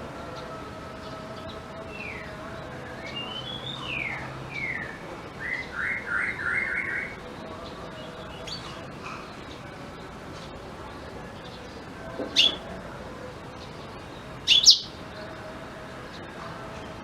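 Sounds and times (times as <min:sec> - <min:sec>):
bird singing whistles and trills: 0:03.0 - 0:07.2, 0:12.3 - 0:12.6, 0:14.5 - 0:15.0.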